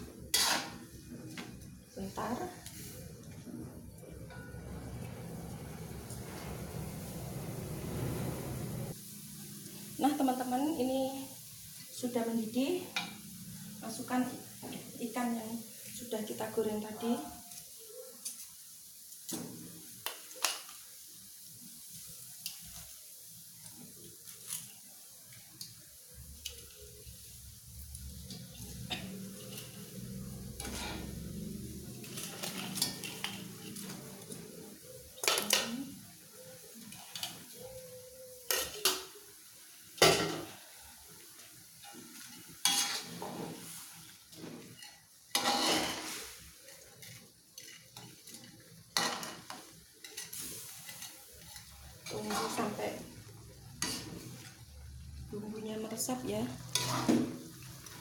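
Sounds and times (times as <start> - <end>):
broth simmering: 0.0 - 15.0, 21.2 - 58.0
utensil knocking and scraping a pot: 0.3 - 1.4, 42.7 - 43.7, 56.8 - 57.4.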